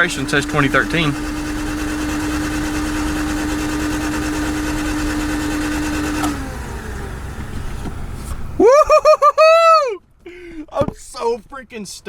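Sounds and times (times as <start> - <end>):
starter motor cranking engine: 0.0 - 8.7.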